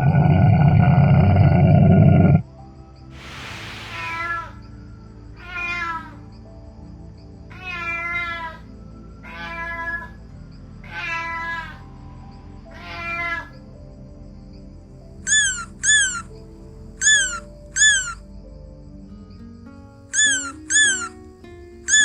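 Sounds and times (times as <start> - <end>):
kitten meowing: 4.0 - 4.6, 7.5 - 8.5, 10.8 - 11.8, 12.8 - 13.5, 15.3 - 16.2, 17.0 - 18.2, 20.2 - 21.2.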